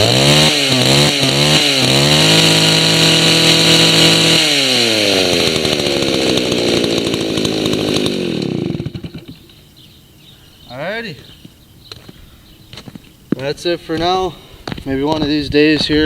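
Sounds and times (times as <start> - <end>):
two-stroke chainsaw revving: 0.0 - 9.7.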